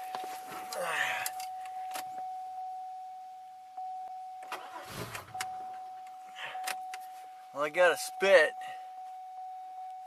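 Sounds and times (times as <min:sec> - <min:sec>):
steady high tone: 0:00.0 - 0:10.0
starter cranking engine: 0:04.5 - 0:05.4.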